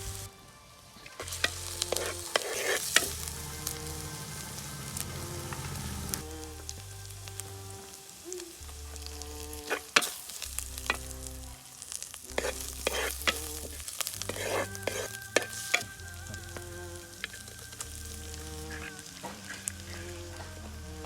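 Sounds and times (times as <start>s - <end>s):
food sizzling in a pan: 0.0s - 21.0s
soft background music: 0.0s - 21.0s
spoon scraping a pan: 1.2s - 4.1s, 8.8s - 21.0s.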